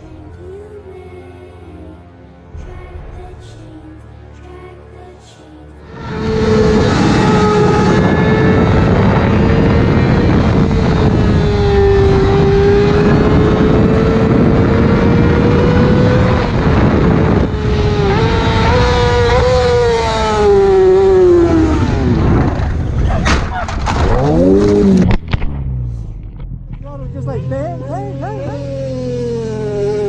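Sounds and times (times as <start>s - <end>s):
motorcycle engine at high revs: 6.0s - 23.1s, 27.3s - 30.0s
wind rush: 6.0s - 25.3s.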